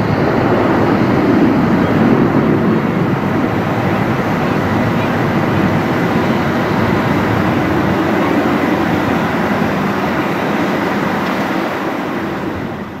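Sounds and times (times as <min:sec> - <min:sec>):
jet engine rumble on takeoff: 0:00.0 - 0:13.0.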